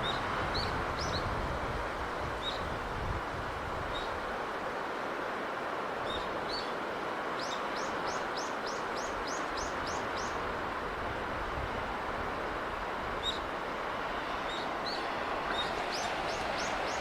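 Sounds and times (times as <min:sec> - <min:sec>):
sea and breeze hiss: 0:00.0 - 0:17.0
bird chirping: 0:14.5 - 0:17.0.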